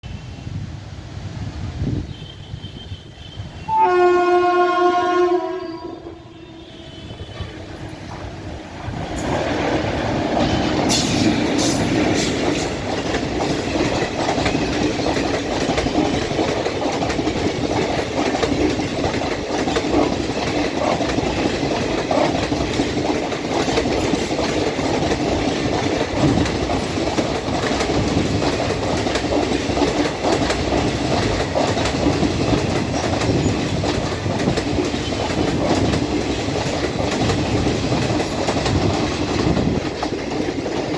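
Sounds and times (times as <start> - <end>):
train rumble: 0.0 - 40.9
train horn: 2.1 - 8.0
wheels clacking over rail joints: 7.0 - 40.9.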